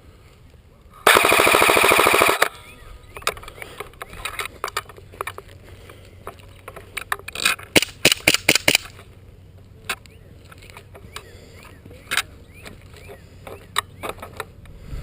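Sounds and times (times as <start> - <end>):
sharp rifle clicks: 1.1 - 2.6, 7.0 - 9.0.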